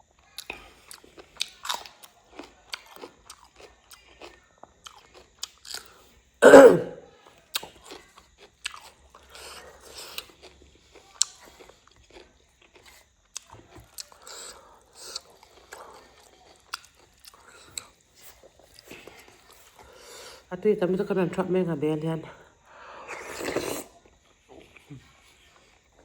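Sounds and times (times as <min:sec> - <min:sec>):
chewing and crunching: 0:00.0 - 0:06.4, 0:07.1 - 0:20.5, 0:22.6 - 0:26.0
throat-clearing cough: 0:06.4 - 0:07.0.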